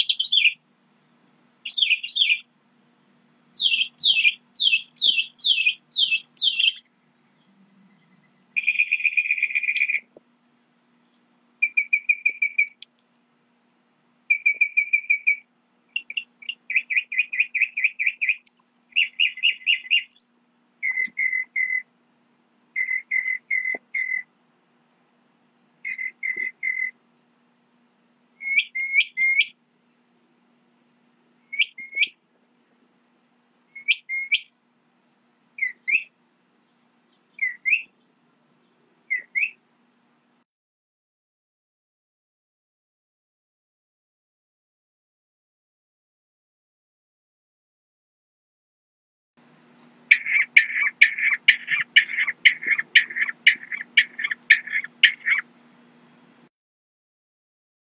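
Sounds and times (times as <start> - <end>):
songbird singing: 0.0 - 13.3, 14.2 - 22.0, 22.7 - 24.4, 25.8 - 27.2, 28.4 - 30.5, 31.3 - 32.3, 33.7 - 34.9, 35.5 - 39.7, 49.8 - 55.5
faint low hum: 0.0 - 40.4.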